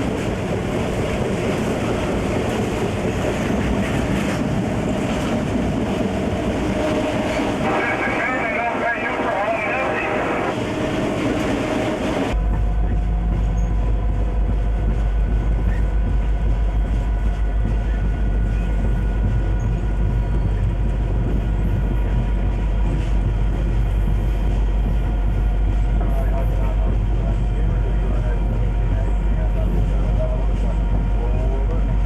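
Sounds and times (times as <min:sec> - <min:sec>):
locomotive engine rumble: 0:00.0 - 0:32.0
noisy rush: 0:00.0 - 0:32.0.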